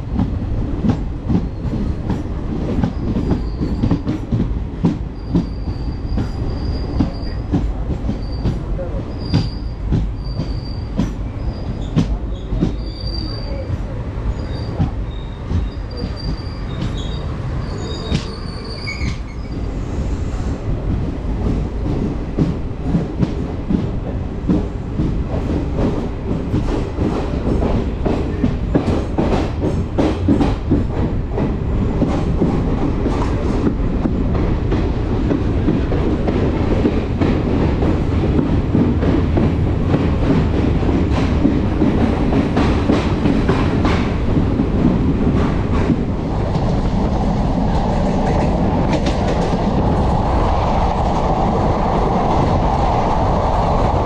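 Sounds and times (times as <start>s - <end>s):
train wheels squealing: 2.8s - 4.1s, 5.1s - 20.5s.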